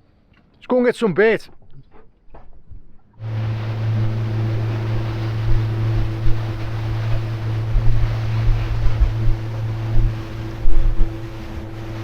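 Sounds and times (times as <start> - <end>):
wind buffeting microphone: 2.6 - 12.0
boat engine humming: 2.8 - 12.0
rushing water: 3.2 - 12.0.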